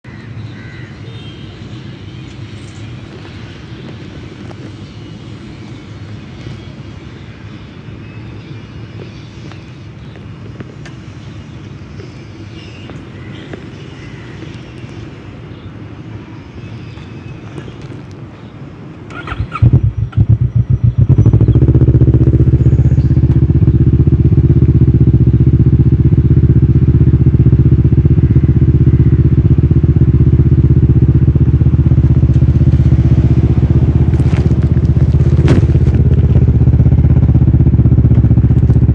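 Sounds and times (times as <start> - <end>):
motorcycle engine idling: 19.1 - 38.9.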